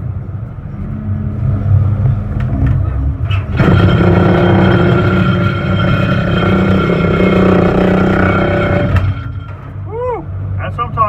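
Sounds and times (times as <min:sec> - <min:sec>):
engine running loud: 0:03.5 - 0:09.6.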